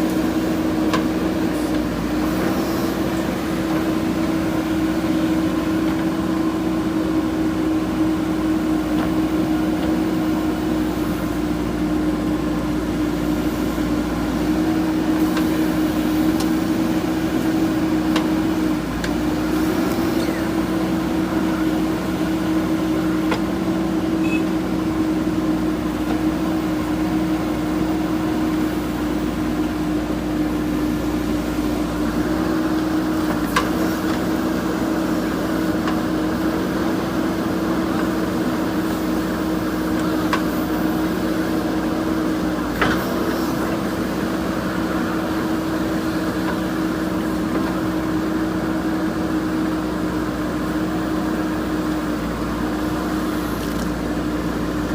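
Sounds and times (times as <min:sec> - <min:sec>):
diesel engine running under load: 0:00.0 - 0:54.9
hydraulic whine: 0:18.6 - 0:25.4.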